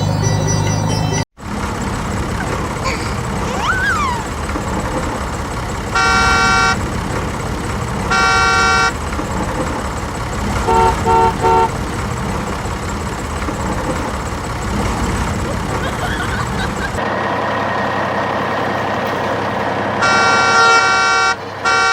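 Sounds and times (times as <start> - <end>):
rumbling engine: 0.0 - 21.9
vehicle horn blasts: 5.9 - 6.9, 8.0 - 9.0, 10.6 - 11.8, 20.0 - 21.9.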